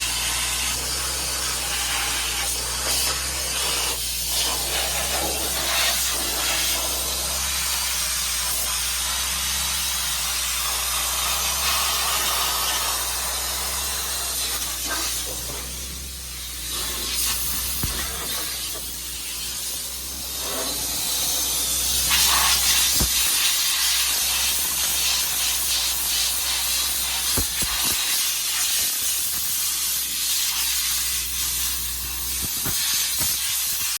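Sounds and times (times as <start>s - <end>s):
loud hiss: 0.0s - 34.0s
diesel truck engine rumbling: 6.9s - 27.8s.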